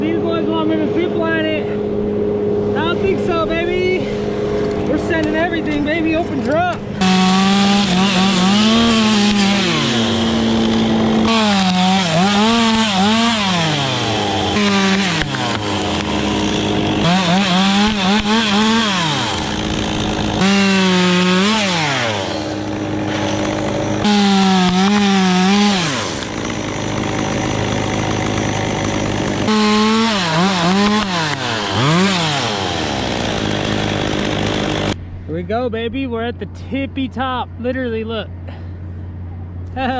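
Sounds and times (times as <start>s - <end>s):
chainsaw cutting wood: 6.9s - 35.0s.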